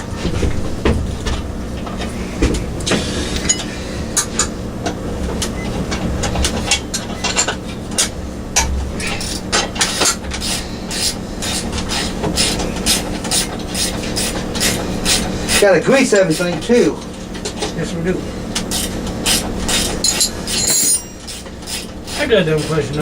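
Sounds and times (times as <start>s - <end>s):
steady low hum: 0.0s - 23.0s
hand tools clinking on metal: 20.0s - 21.5s.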